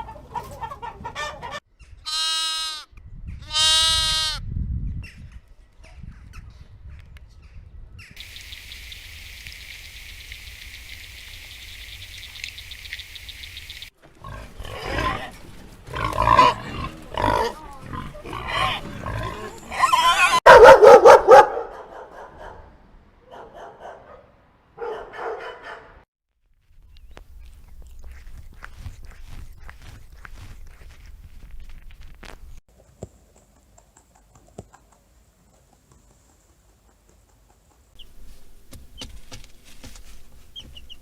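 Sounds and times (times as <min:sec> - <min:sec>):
high-pitched hiss of insects: 0:08.2 - 0:13.9
pigs grunting and squealing: 0:14.2 - 0:20.4.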